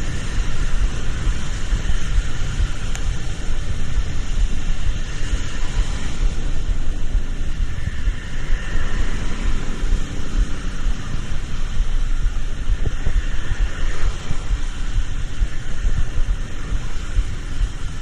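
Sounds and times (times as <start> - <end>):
even hiss: 0.0 - 18.0
traffic rumble: 0.0 - 18.0
wind buffeting microphone: 0.0 - 18.0.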